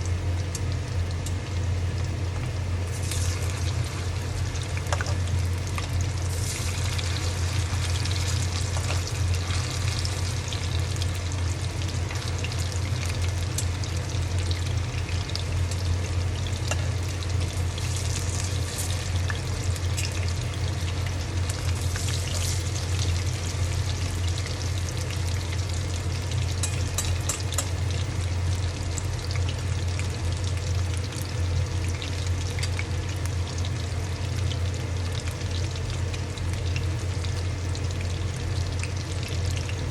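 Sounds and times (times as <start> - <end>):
oil crackles and pops: 0.0 - 25.6
low hum: 0.0 - 28.8
food deep-frying in oil: 0.0 - 39.9.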